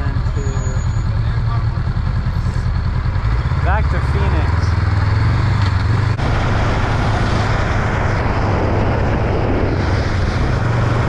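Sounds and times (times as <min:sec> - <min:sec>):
motorcycle engine cruising: 0:00.0 - 0:11.0
wind rush: 0:04.8 - 0:11.0.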